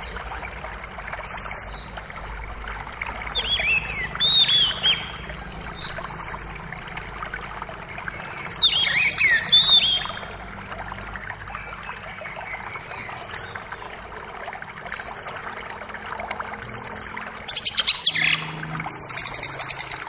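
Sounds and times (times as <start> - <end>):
rapid bird twittering: 0.0 - 0.6, 3.3 - 6.5, 8.4 - 10.3, 16.6 - 20.0
trickling creek: 0.0 - 20.0.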